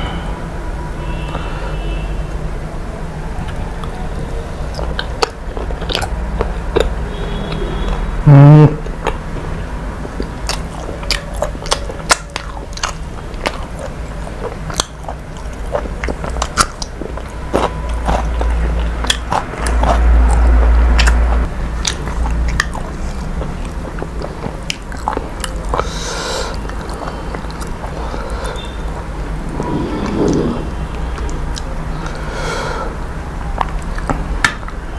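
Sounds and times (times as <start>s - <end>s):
person chewing crunchy food: 3.4s - 8.1s, 8.8s - 34.9s
low rumble: 28.9s - 31.6s.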